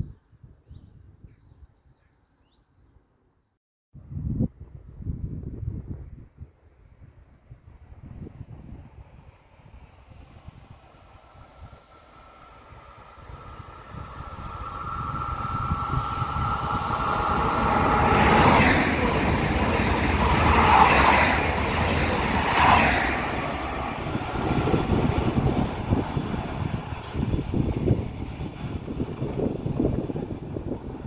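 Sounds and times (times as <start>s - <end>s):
electric train passing: 9.1s - 31.0s
high ringing tone: 13.9s - 18.6s.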